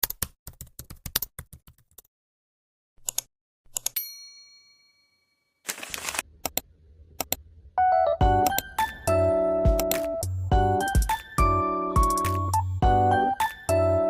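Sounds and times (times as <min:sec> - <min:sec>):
bell-like ding: 0:04.0 - 0:05.6.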